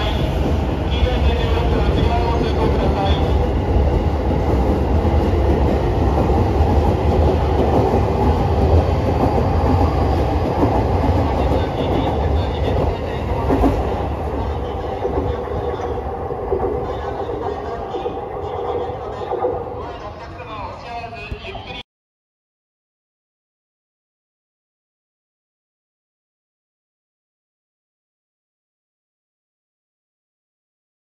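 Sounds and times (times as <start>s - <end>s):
train wheels rumbling on rail: 0.0s - 19.7s.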